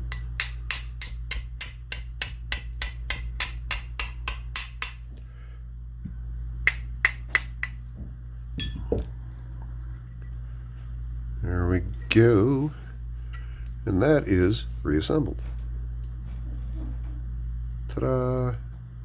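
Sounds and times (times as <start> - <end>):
small hammer tapping metal: 0.0 - 5.1, 6.6 - 7.8, 8.6 - 9.1.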